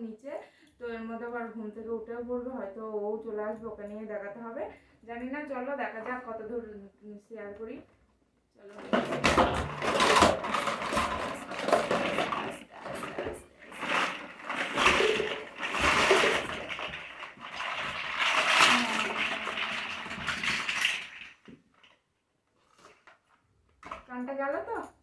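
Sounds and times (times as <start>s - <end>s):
toys clattering and rattling: 8.7s - 22.0s.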